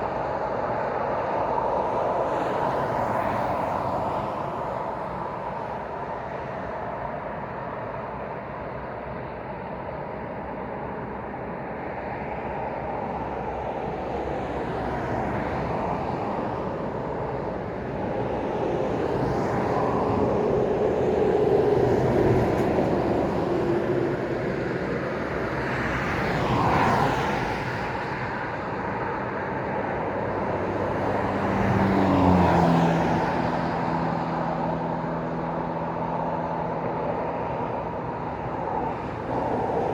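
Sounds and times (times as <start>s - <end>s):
road traffic tyre and engine noise: 0.0s - 39.9s
vehicles passing by: 13.5s - 39.9s.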